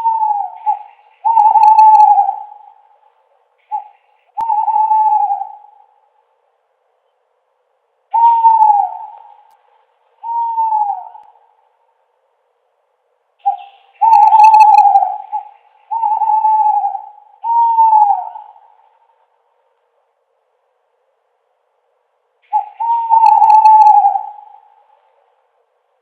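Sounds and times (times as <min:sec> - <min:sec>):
owl hooting: 0:00.0 - 0:06.2, 0:08.1 - 0:09.6, 0:10.2 - 0:11.6, 0:13.4 - 0:19.3, 0:22.4 - 0:25.5.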